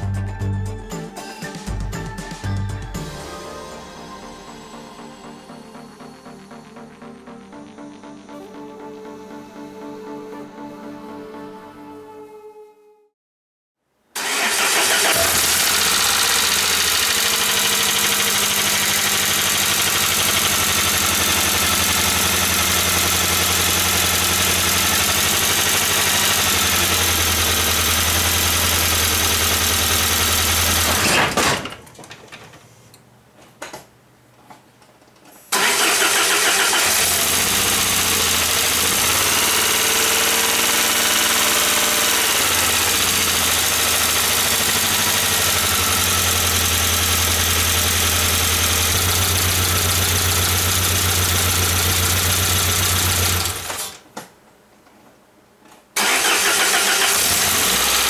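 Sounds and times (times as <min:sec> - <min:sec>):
car engine idling: 0:14.2 - 0:31.0, 0:35.6 - 0:53.9, 0:56.0 - 0:58.0.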